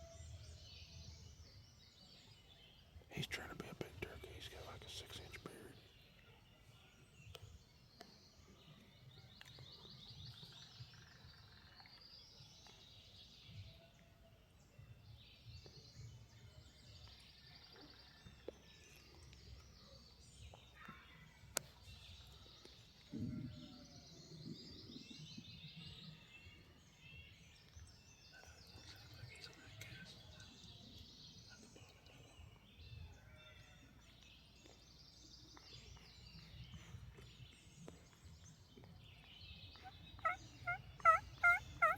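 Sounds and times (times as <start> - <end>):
songbirds trilling: 35.5 - 41.9.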